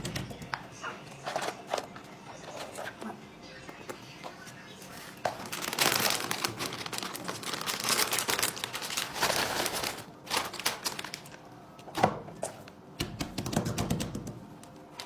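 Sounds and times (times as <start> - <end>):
dense crinkling and crackling: 4.8 - 11.4.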